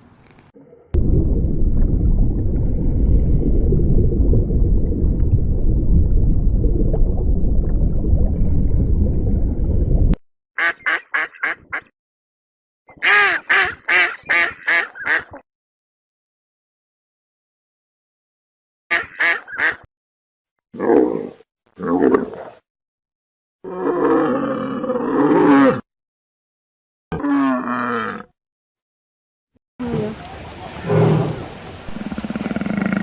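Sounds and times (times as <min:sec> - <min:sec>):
loud low rumbling: 0:01.0 - 0:10.2
duck quacking: 0:10.6 - 0:11.9, 0:13.0 - 0:15.4, 0:18.9 - 0:19.8.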